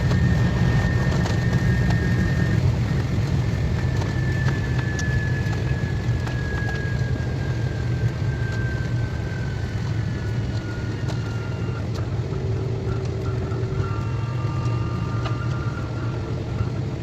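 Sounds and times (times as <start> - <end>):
faint high whining tones: 0.0 - 17.0
train interior rumble: 0.0 - 17.0.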